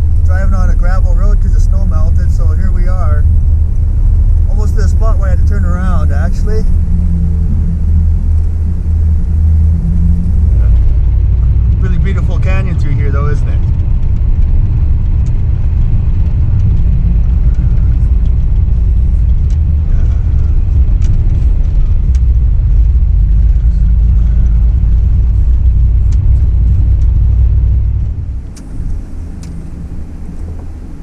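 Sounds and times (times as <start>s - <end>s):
truck driving on gravel: 0.0s - 31.0s
small ticks and clicks: 13.6s - 27.8s.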